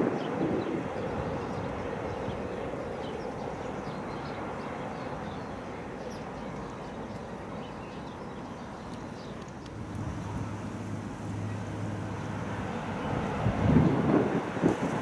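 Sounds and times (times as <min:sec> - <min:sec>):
wind gust on microphone: 0:00.0 - 0:03.2, 0:09.7 - 0:15.0
distant train on bridge: 0:00.0 - 0:15.0.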